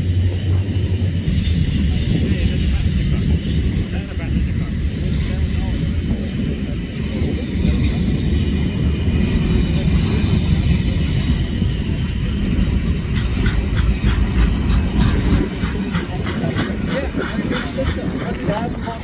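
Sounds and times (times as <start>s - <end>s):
train rumbling along track: 0.0s - 19.0s
rhythmic clacking: 8.8s - 19.0s.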